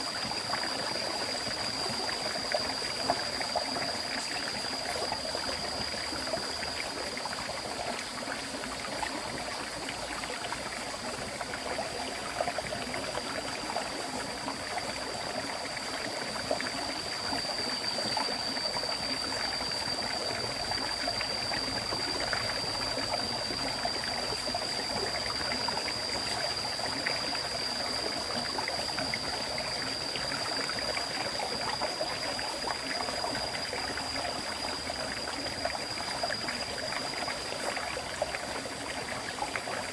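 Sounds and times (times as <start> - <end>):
river water flowing over stones: 0.0 - 39.9
high-pitched whine: 14.4 - 39.9.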